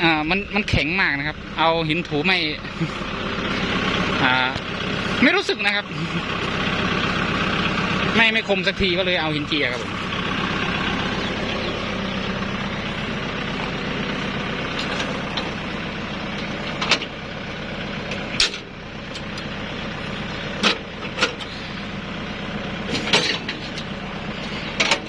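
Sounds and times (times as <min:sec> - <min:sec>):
diesel engine idling: 0:00.0 - 0:25.0
sharp metallic clanks: 0:18.4 - 0:18.7.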